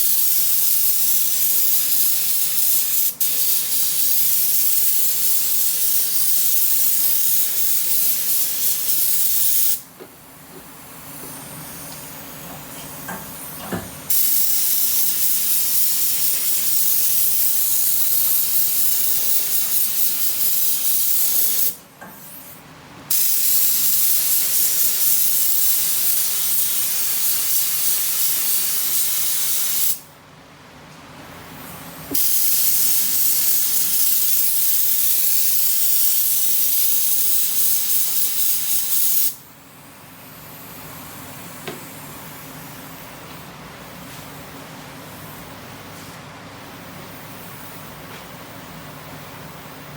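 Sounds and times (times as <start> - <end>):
paint spray gun hissing: 0.0 - 9.9, 14.1 - 21.8, 23.1 - 30.0, 32.1 - 39.4.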